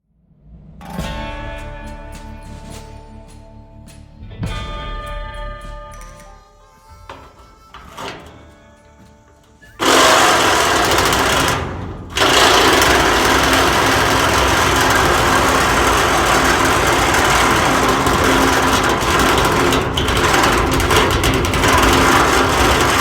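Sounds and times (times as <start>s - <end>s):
power tool cutting steel: 9.6s - 23.0s.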